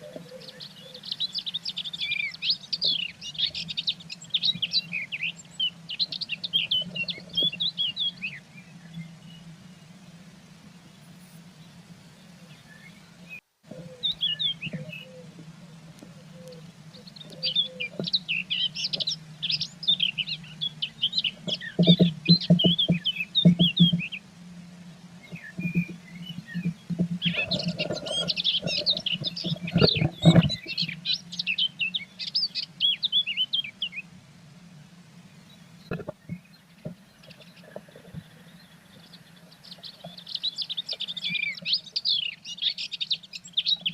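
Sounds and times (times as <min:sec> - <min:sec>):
steady low hum: 0:00.0 - 0:41.8
small birds chirping: 0:00.0 - 0:43.9
knocks and scratching in nest box: 0:21.2 - 0:24.2, 0:25.2 - 0:30.8.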